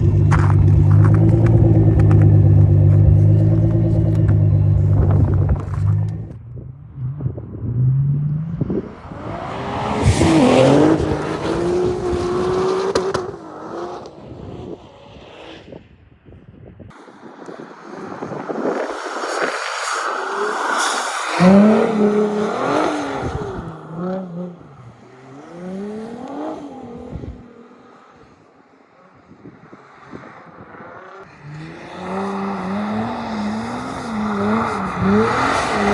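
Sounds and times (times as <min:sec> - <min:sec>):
car engine revving hard: 0:08.3 - 0:15.7, 0:21.3 - 0:28.4, 0:30.8 - 0:35.9.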